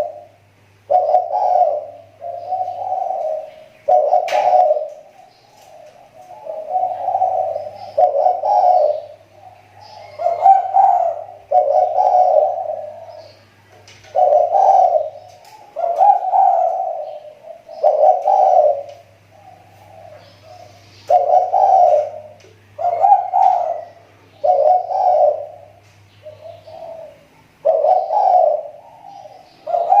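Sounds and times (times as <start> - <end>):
dove cooing: 0.0 - 30.0.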